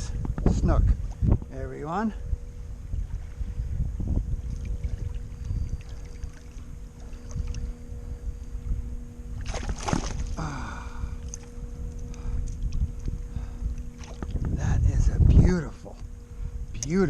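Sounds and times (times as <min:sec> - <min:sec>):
faint steady hum: 0:00.0 - 0:17.0
wind buffeting microphone: 0:00.0 - 0:17.0.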